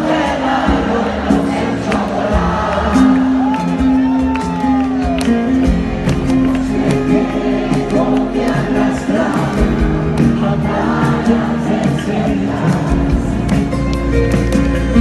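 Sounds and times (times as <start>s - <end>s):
drum strokes: 0.0s - 15.0s
live band music: 0.0s - 15.0s
person singing: 0.0s - 15.0s.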